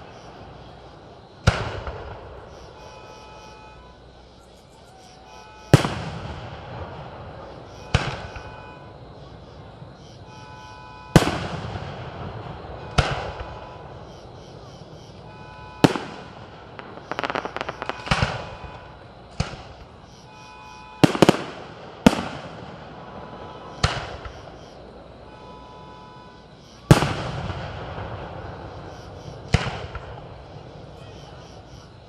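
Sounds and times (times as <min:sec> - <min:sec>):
rapid firework crackling: 0:11.2 - 0:14.1, 0:15.8 - 0:20.1, 0:21.0 - 0:24.6
firework shell bursts: 0:15.8 - 0:18.8.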